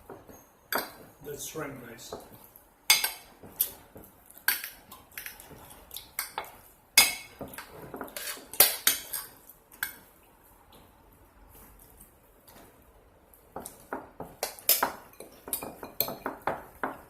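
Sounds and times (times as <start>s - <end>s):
cutlery clinking on dishes: 2.9s - 3.8s, 6.2s - 10.1s, 13.6s - 17.0s.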